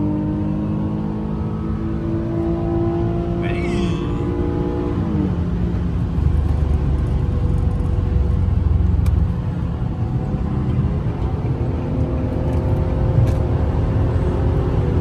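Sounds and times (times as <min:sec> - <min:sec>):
car engine driving at speed: 0:00.0 - 0:15.0.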